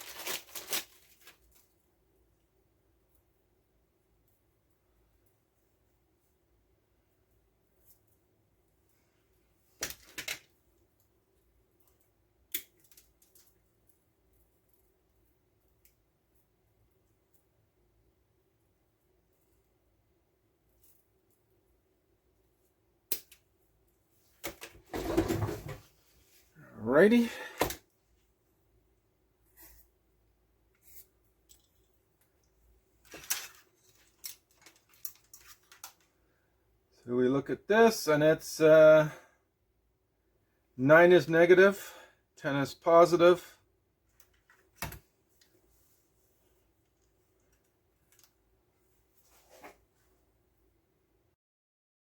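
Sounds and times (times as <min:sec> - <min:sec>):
wires rustling: 0:00.0 - 0:02.0, 0:07.2 - 0:17.5, 0:30.7 - 0:36.3
clicks and clatter of small parts: 0:09.8 - 0:10.5, 0:11.8 - 0:14.8, 0:31.4 - 0:36.1, 0:46.9 - 0:48.4.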